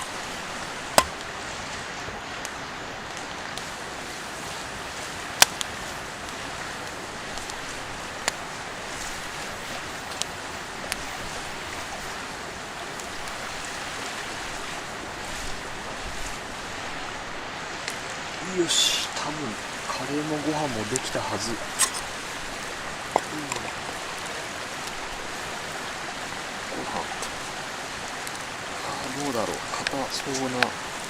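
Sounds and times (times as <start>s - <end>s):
stream rushing: 0.0s - 31.0s
sharp snaps: 5.4s - 6.4s, 21.7s - 22.1s.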